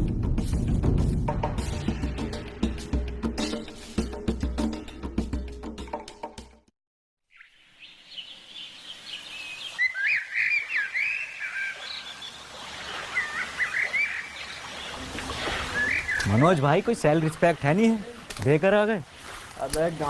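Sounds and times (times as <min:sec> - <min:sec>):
birds chirping and calling: 0:07.3 - 0:18.5
faint outdoor hiss: 0:07.3 - 0:20.0.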